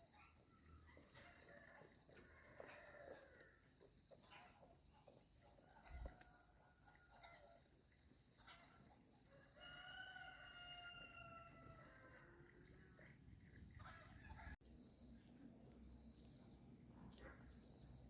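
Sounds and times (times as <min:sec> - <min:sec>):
faint rooster crowing: 0:00.1 - 0:04.6, 0:05.6 - 0:07.7, 0:08.5 - 0:13.1.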